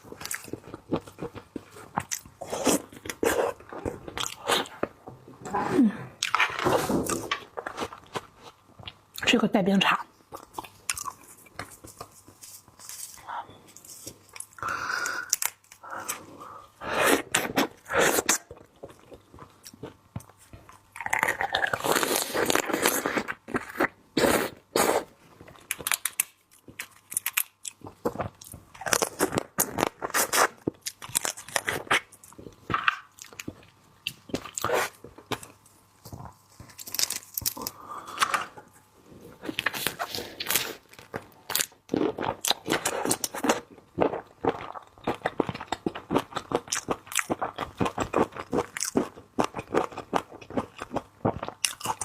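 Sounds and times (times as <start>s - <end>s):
chewing and crunching icy seafood: 17.3s - 24.0s, 39.4s - 52.0s.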